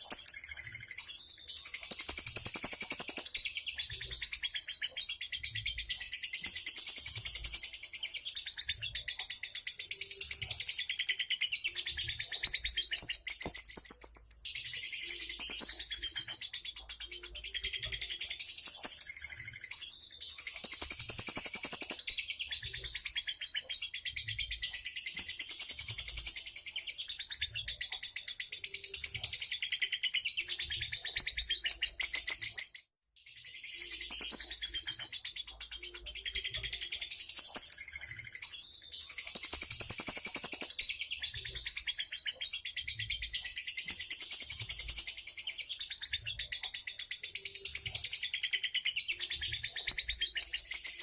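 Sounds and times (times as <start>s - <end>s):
songbird chirping rapidly: 0.0s - 32.7s.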